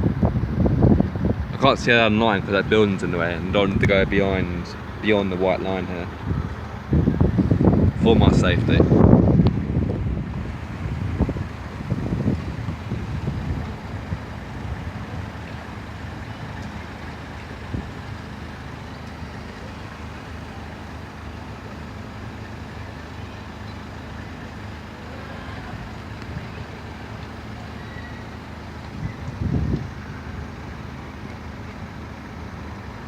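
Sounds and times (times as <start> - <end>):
idling vehicle engines: 0.0 - 33.0
street traffic: 0.0 - 33.0.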